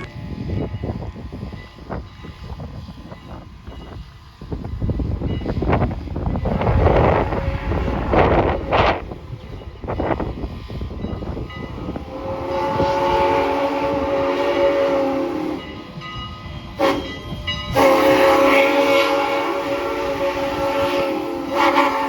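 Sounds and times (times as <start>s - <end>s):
train chime whistle: 0.0s - 0.3s, 16.6s - 22.0s.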